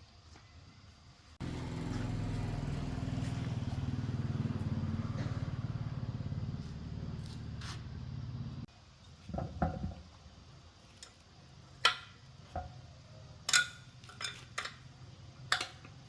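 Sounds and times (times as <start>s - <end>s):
piston air compressor running: 1.4s - 8.6s.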